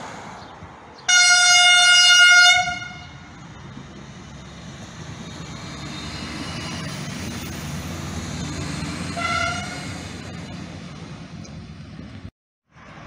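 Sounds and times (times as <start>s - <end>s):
train rumbling past on rails: 0.0s - 13.0s
train horn toot: 1.1s - 3.2s, 9.2s - 10.0s.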